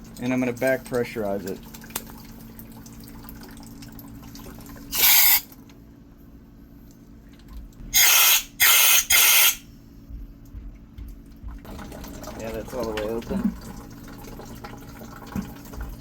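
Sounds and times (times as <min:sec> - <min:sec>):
water running from drain: 0:00.0 - 0:05.6, 0:11.0 - 0:16.0
compressed air hissing blasts: 0:04.9 - 0:05.4, 0:07.9 - 0:09.6.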